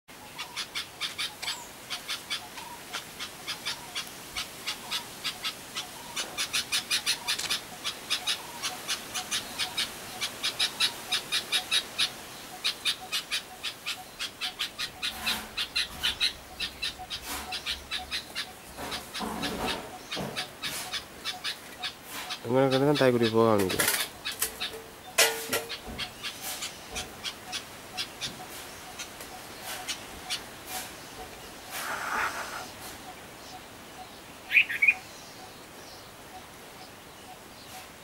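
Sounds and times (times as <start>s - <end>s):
small birds chirping: 0.1s - 38.0s.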